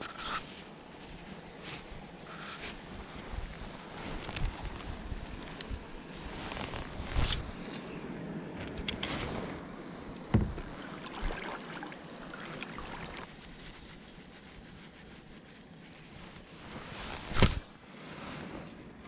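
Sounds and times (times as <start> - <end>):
water around kayak: 0.1 - 19.0
knocks against hull: 10.3 - 10.7.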